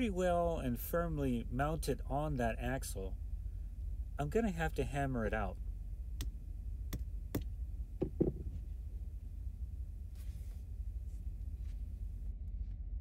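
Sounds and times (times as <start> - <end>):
quiet handling: 5.0 - 12.9.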